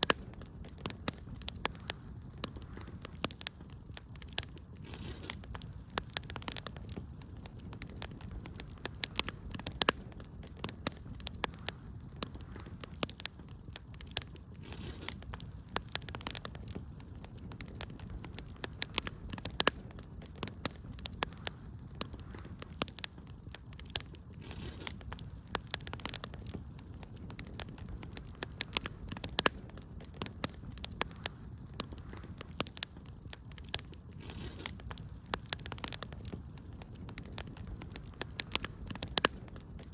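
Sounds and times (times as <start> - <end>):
fire crackling and popping: 0.0 - 39.9
low rumble of burning logs: 0.0 - 39.9.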